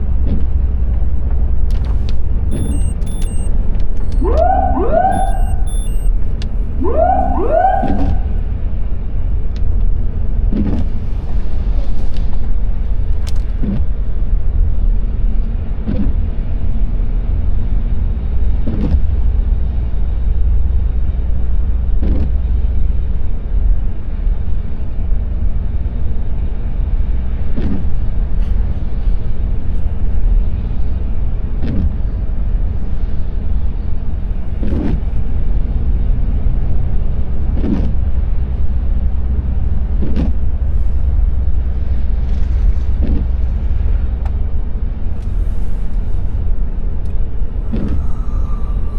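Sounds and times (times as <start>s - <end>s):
car road and engine rumble: 0.0s - 48.9s
short rising squeals: 2.5s - 8.5s, 47.6s - 48.9s.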